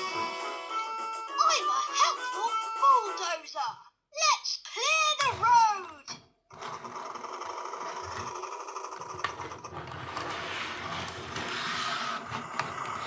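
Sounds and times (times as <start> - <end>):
toy bulldozer engine whirring: 6.5 - 13.0.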